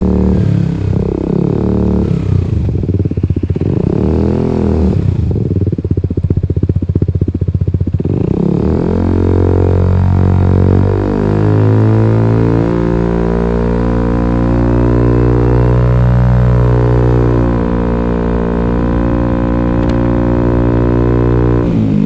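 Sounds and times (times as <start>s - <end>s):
scooter engine revving: 0.0s - 6.4s, 7.9s - 22.0s.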